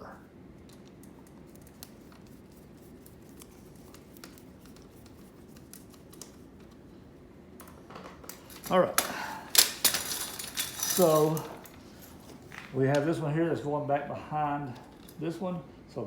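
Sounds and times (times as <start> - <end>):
low room hum: 0.0 - 16.0
clicks and rustles of chair strap: 0.6 - 6.8, 7.6 - 13.1.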